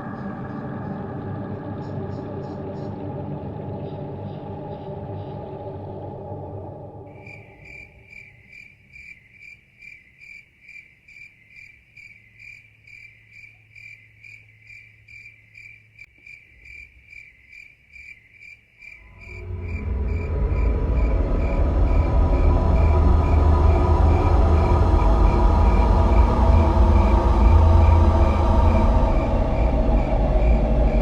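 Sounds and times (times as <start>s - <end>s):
low rumble: 0.0s - 8.4s, 19.0s - 31.0s
cricket chirping: 7.1s - 31.0s.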